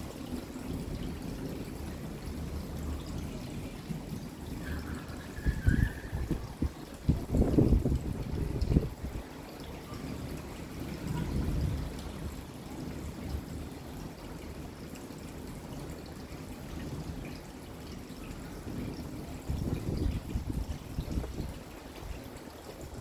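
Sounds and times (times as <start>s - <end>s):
rain falling: 0.0s - 23.0s
distant thunder rumble: 4.3s - 9.2s.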